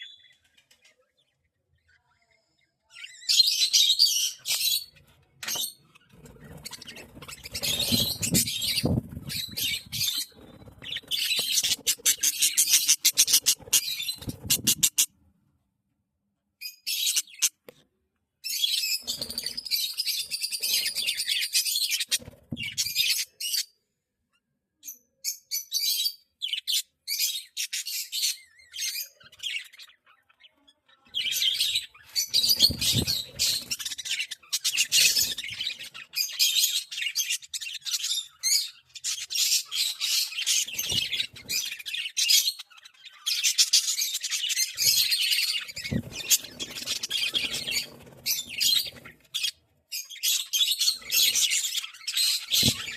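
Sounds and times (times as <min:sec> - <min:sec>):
budgerigars chattering and warbling: 0:03.0 - 0:15.1, 0:18.5 - 0:23.6, 0:31.2 - 0:52.9.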